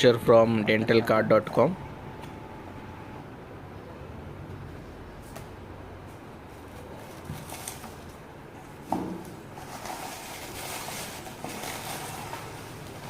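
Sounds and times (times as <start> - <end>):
packaging rustling: 6.6 - 8.2, 8.8 - 13.0.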